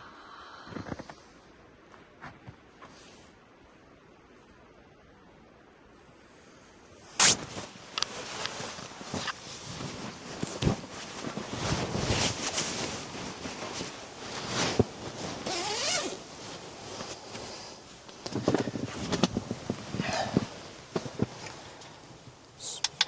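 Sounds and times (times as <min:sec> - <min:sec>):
zipper being pulled: 0:07.2 - 0:17.3
fabric rustling: 0:07.2 - 0:22.6.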